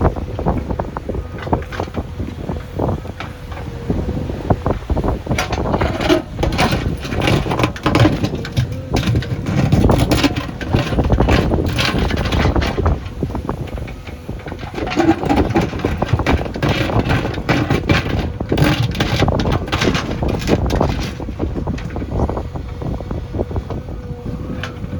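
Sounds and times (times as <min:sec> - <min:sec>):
diesel engine rumbling: 0:00.0 - 0:24.9
irregular knocks and clatter: 0:05.1 - 0:23.8.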